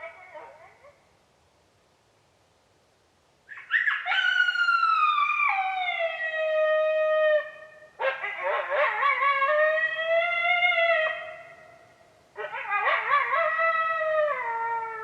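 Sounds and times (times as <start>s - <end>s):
coyote howl on predator call: 3.5s - 15.0s.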